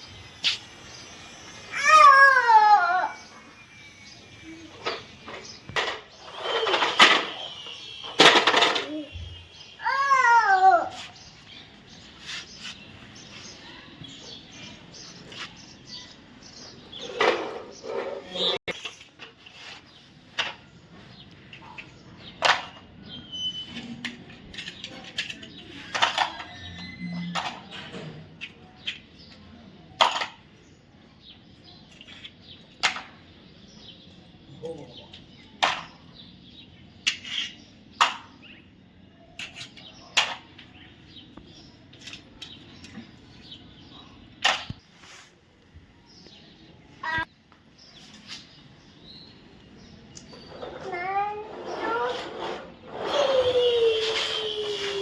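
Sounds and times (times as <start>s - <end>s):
short clicks and clatters: 4.8s - 9.1s
toy cars clicking and knocking: 4.8s - 9.4s, 21.5s - 22.9s, 23.8s - 30.5s, 31.9s - 33.3s, 35.1s - 36.1s, 37.0s - 38.4s, 39.4s - 40.8s, 50.2s - 55.0s.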